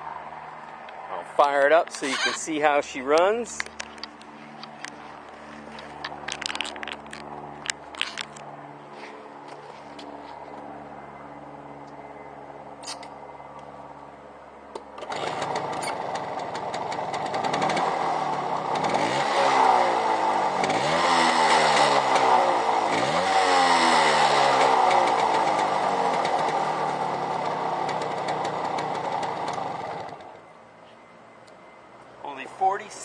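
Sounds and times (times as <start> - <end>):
two-stroke engine starting and revving: 15.0 - 30.4.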